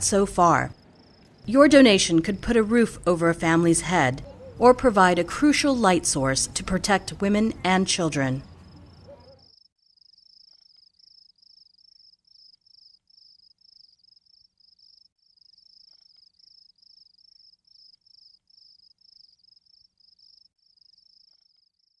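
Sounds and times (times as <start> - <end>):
cricket chirping: 0.7 - 1.5, 8.4 - 22.0.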